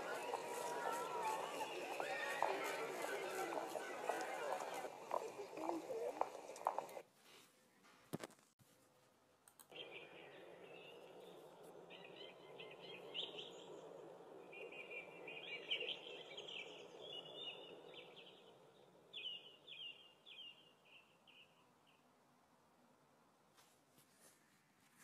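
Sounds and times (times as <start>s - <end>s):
faint outdoor ambience: 0.0s - 25.0s
small birds chirping: 9.6s - 22.1s.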